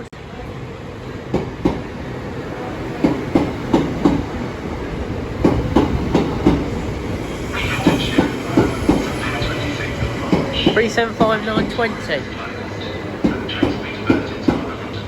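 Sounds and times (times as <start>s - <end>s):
train rumble: 0.0s - 15.0s
train wheels clickety-clack: 1.3s - 1.9s, 3.0s - 4.4s, 5.4s - 12.1s, 12.8s - 15.0s.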